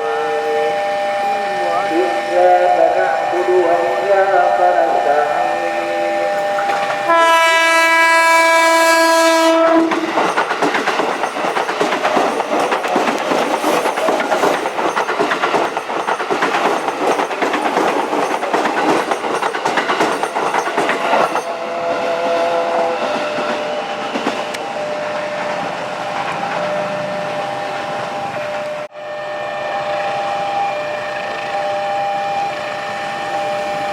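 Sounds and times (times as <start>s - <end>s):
train horn blast: 0.0s - 10.1s, 21.6s - 23.8s, 28.6s - 33.9s
train wheels clattering over rails: 6.3s - 7.2s, 9.1s - 27.2s.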